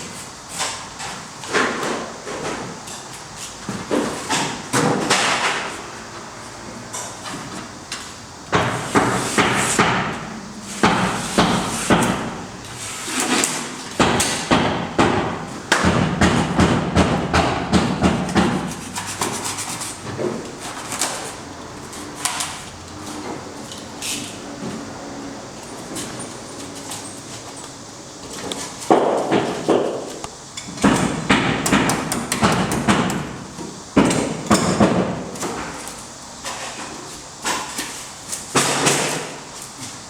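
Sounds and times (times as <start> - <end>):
hammering knocks: 30.8 - 33.2.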